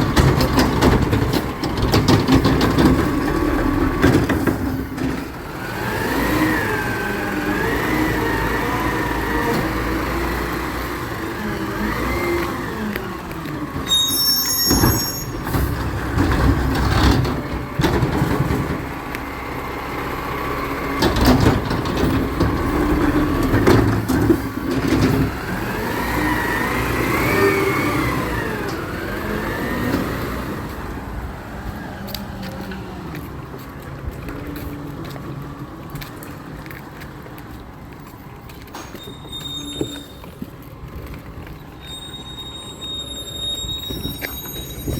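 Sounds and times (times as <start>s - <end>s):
knocks and clanks: 0.0s - 5.6s, 14.7s - 19.1s, 21.0s - 25.8s, 38.5s - 40.6s
truck engine revving: 0.0s - 13.9s, 14.8s - 36.4s
high squeal: 13.8s - 15.8s, 38.8s - 40.4s, 41.7s - 44.9s.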